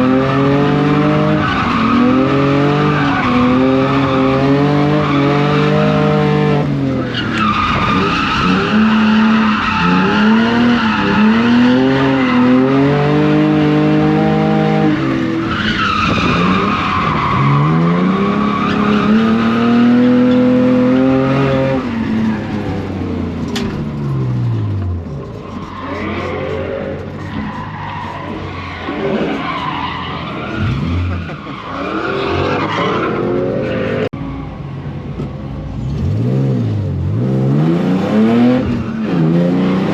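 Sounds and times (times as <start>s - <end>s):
car engine revving: 0.0s - 39.9s
tyre squeal: 25.1s - 34.5s.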